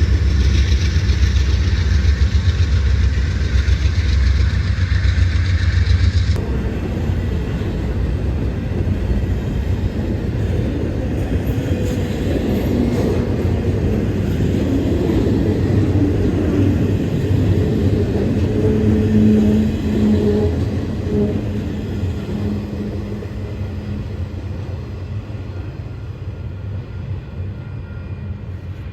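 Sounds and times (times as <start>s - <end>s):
train wheels rumbling on rails: 0.0s - 28.9s.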